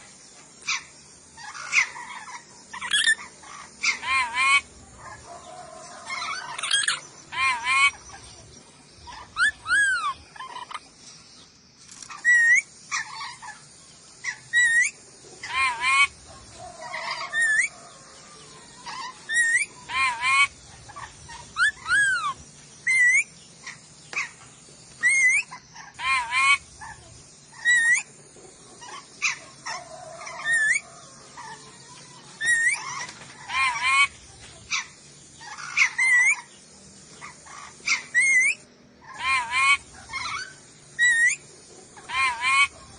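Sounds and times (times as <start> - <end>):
parrot screeching and whistling: 1.4 - 4.7, 6.0 - 8.0, 9.1 - 10.8, 12.2 - 13.4, 14.5 - 16.1, 16.9 - 17.8, 18.9 - 20.5, 21.3 - 23.3, 25.0 - 26.6, 27.5 - 28.1, 28.8 - 30.9, 32.4 - 34.1, 35.4 - 36.5, 37.4 - 41.4, 42.1 - 42.8.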